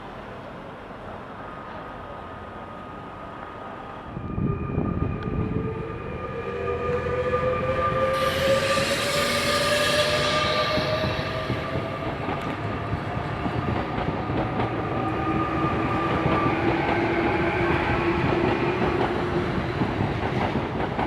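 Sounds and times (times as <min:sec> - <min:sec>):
train rumble: 0:00.0 - 0:21.0
train motor whine: 0:04.2 - 0:12.8.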